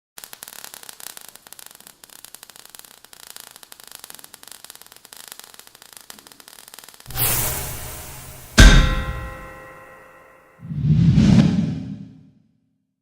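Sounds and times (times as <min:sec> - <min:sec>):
crackling static: 0:00.2 - 0:07.1.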